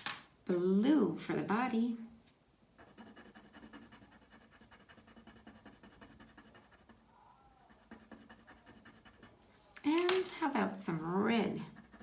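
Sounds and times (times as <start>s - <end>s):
pencil scratching on paper: 2.8s - 7.0s, 7.7s - 9.4s, 11.7s - 12.0s.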